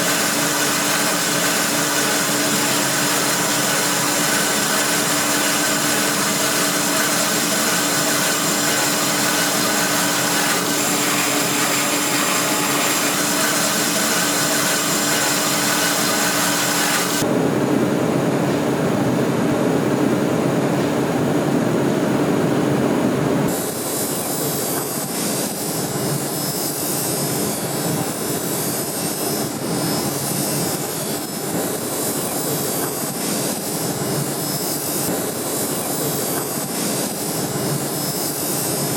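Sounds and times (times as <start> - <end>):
electric power tool whining: 0.0 - 17.2.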